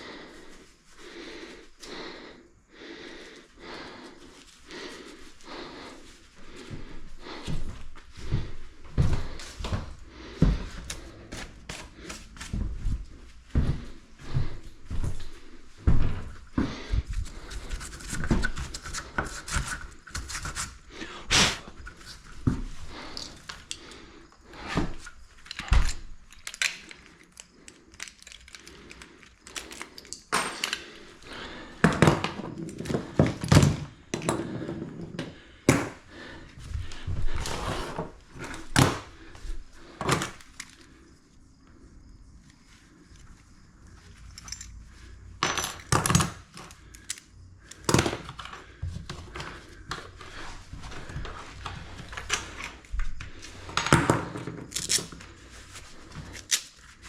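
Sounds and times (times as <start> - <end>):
objects knocking and scraping: 31.8 - 36.0, 53.5 - 55.2.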